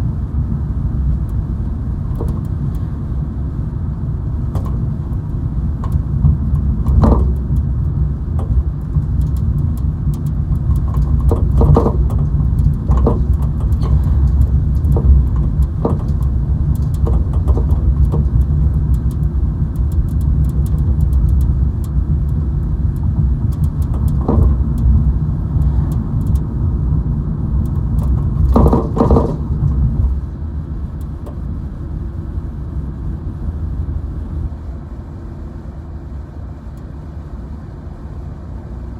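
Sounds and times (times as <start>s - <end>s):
car road noise from inside: 0.0s - 38.9s
small knocks and rattles: 2.1s - 2.9s, 4.4s - 30.2s.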